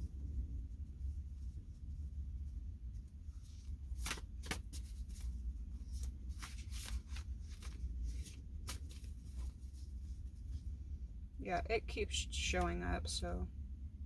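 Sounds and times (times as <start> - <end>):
low steady hum: 0.0 - 14.0
cards being shuffled: 3.4 - 10.0.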